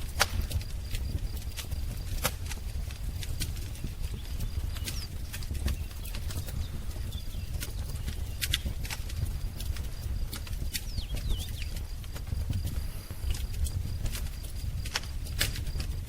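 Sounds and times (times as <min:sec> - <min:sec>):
wood fire crackling and popping: 0:00.0 - 0:16.0
bird chirps: 0:03.8 - 0:08.8, 0:10.8 - 0:12.0.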